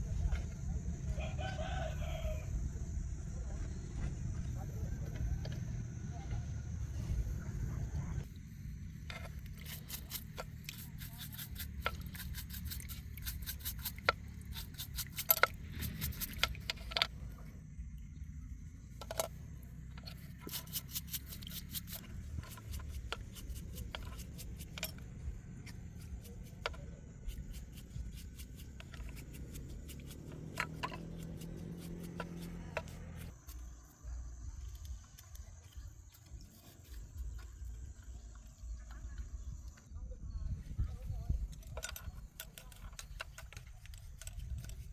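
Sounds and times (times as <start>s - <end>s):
steady low rumble: 0.0s - 44.9s
metal tools clinking and scraping: 20.0s - 33.3s, 41.6s - 44.9s.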